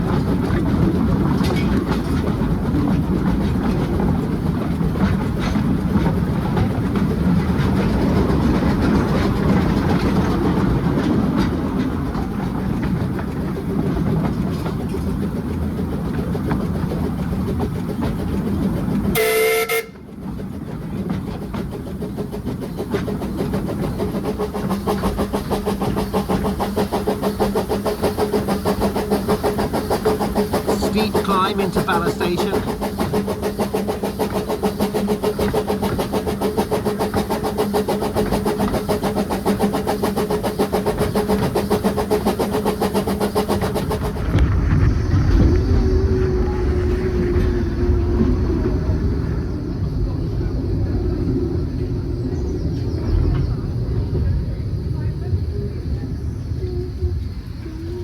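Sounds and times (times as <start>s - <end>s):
wheel clatter on rails: 0.0s - 56.5s
steam train rumbling: 0.0s - 58.0s
train whistle blast: 19.2s - 20.0s
regular beat: 30.6s - 32.9s.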